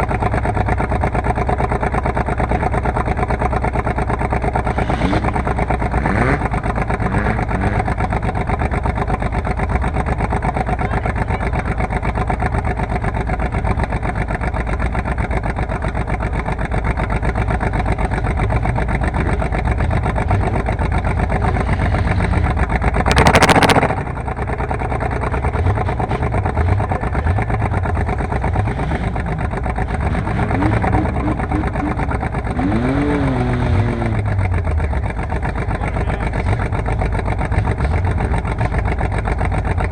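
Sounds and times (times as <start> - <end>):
car engines revving: 2.0 - 39.9
loud burst of noise: 23.0 - 24.2.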